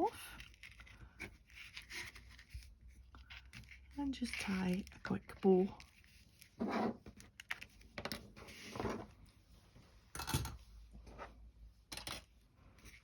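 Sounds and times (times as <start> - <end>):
ribbon and paper rustling: 0.0 - 8.8.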